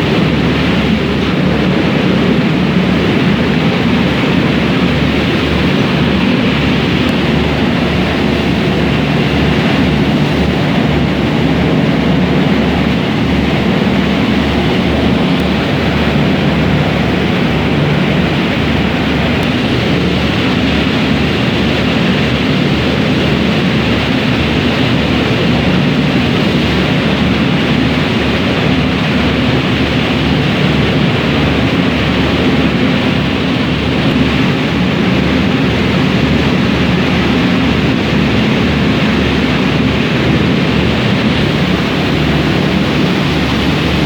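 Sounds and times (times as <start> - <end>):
ferry engine drone: 0.0 - 44.0
rushing water: 0.0 - 44.0
wind: 0.0 - 44.0.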